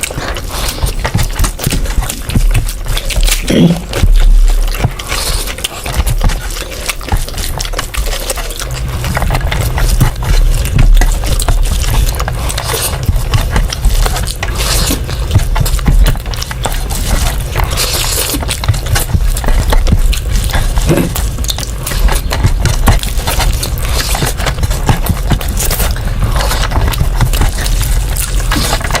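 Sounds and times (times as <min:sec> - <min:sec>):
chewing with clicks and smacks: 0:00.0 - 0:29.0.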